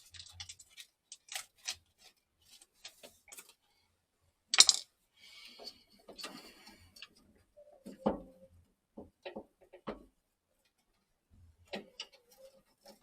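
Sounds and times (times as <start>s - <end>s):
metal parts clicking and knocking: 0.0s - 1.8s, 4.5s - 4.8s.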